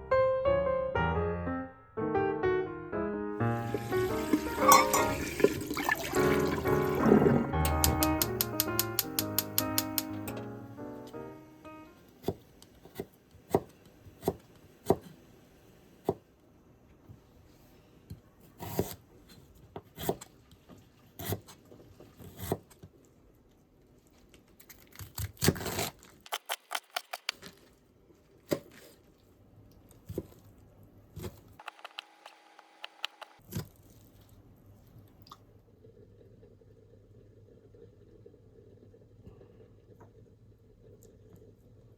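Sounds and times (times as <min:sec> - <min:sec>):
knife chopping on cutting board: 0:12.2 - 0:15.2, 0:18.6 - 0:19.0, 0:19.8 - 0:20.3.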